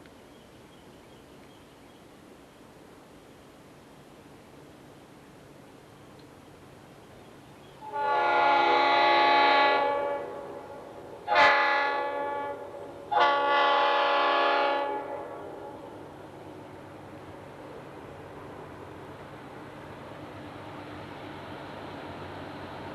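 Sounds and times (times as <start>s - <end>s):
locomotive air horn blasts: 7.8s - 16.0s.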